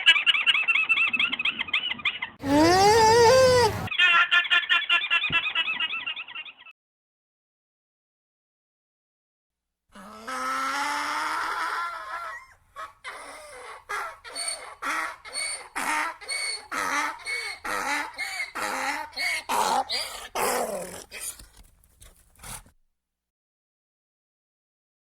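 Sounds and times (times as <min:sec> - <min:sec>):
donkey braying: 0:02.4 - 0:03.9, 0:10.0 - 0:21.5.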